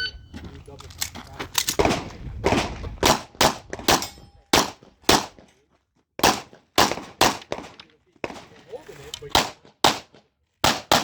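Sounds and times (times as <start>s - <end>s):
pistol shots: 1.8s - 5.4s, 6.2s - 8.5s, 9.3s - 11.0s.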